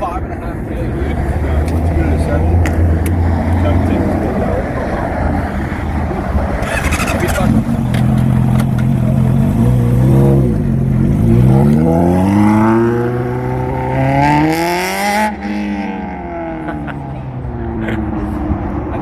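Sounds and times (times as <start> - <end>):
motorcycle engine accelerating: 6.6 - 16.8.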